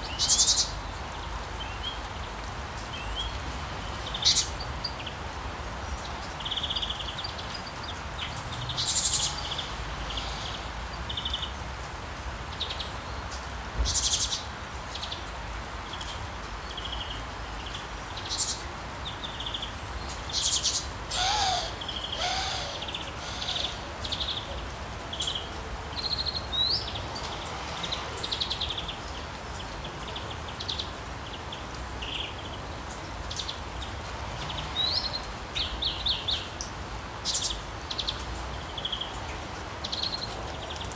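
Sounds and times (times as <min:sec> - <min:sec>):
steady background hiss: 0:18.1 - 0:25.9
birds chirping and calling: 0:20.4 - 0:24.6
lower bird call: 0:20.6 - 0:24.5.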